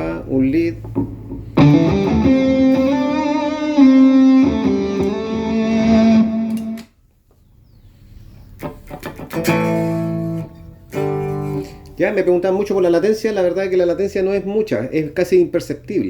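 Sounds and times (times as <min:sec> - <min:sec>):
electric guitar wah lead: 0:00.9 - 0:06.8, 0:08.6 - 0:12.0
sharp clicks: 0:06.5 - 0:06.9.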